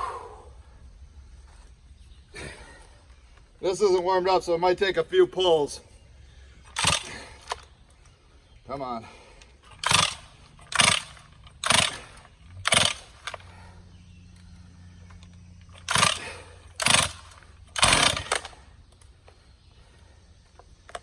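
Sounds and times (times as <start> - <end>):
chainsaw starter cord rips: 6.7 - 7.7, 9.7 - 13.6, 15.6 - 18.7.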